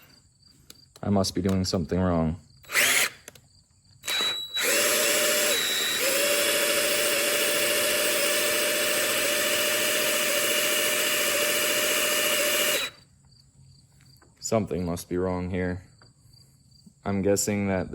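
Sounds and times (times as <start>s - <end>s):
cordless drill spinning pump: 2.6s - 3.4s, 4.0s - 13.0s.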